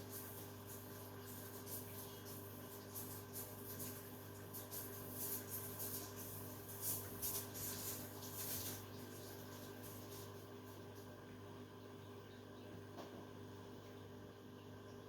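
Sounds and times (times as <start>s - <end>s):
washing machine drum swishing: 0.0s - 10.4s
washing machine motor hum: 0.0s - 15.0s.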